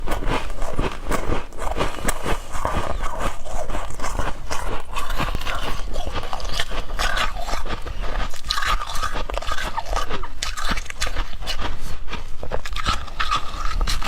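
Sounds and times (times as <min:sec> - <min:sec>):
frost crunching: 0:00.0 - 0:14.0.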